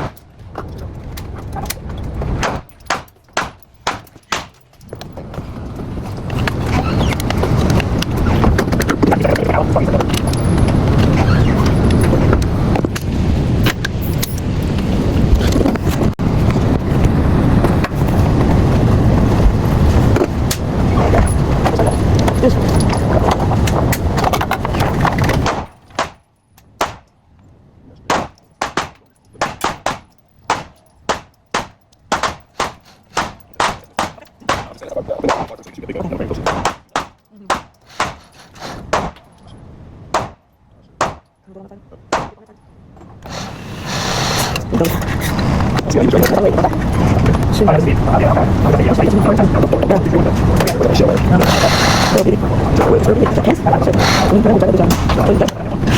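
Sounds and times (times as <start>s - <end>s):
car road and wind rumble: 0.0s - 37.2s, 38.5s - 55.9s
sharp knocks: 2.2s - 4.6s, 23.3s - 26.2s, 26.8s - 27.1s, 28.1s - 35.5s, 36.4s - 39.2s, 40.1s - 40.4s, 41.0s - 41.2s.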